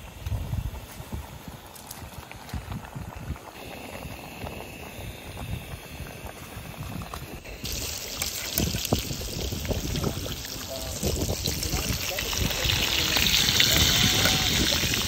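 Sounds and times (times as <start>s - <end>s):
bright hiss: 3.5s - 14.5s.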